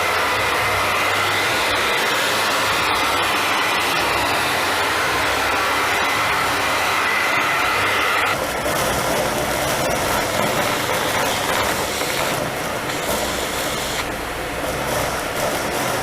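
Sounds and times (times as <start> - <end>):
vacuum cleaner running: 0.0 - 16.0
debris clicking through nozzle: 8.4 - 14.1.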